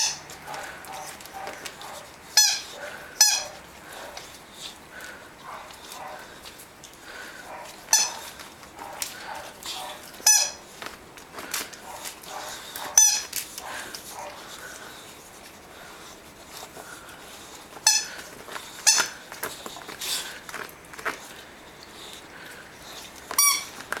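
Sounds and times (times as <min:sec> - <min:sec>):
squeaky toy ball squeaks: 0:00.0 - 0:00.3, 0:02.4 - 0:03.6, 0:07.9 - 0:08.2, 0:10.2 - 0:10.6, 0:13.0 - 0:13.3, 0:17.8 - 0:18.2, 0:18.8 - 0:19.2, 0:23.3 - 0:23.8.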